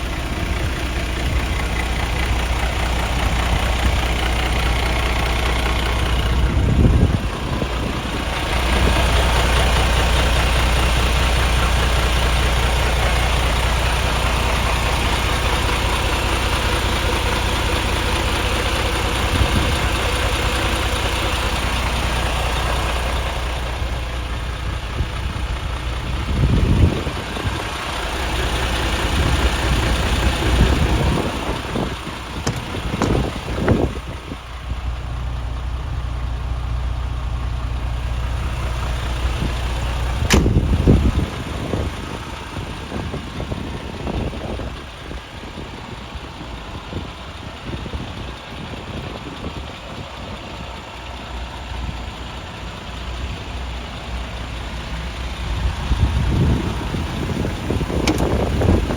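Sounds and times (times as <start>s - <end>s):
diesel truck engine idling: 0.0s - 58.9s
bumps and knocks: 32.4s - 33.8s, 40.2s - 41.0s
sharp click: 40.3s - 40.6s, 58.0s - 58.4s.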